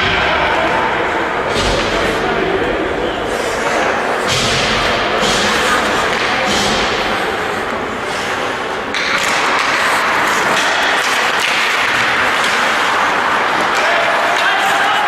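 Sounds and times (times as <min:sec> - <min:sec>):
sports hall din: 0:00.0 - 0:15.0.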